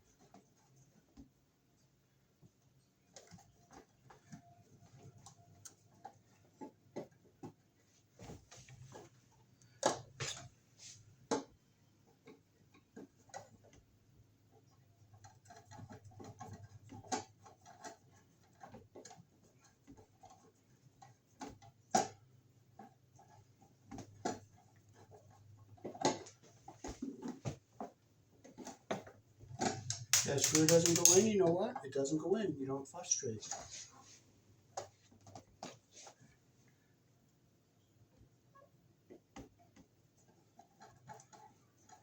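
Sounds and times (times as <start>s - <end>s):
screwdriver tapping plastic cover: 29.8s - 31.3s.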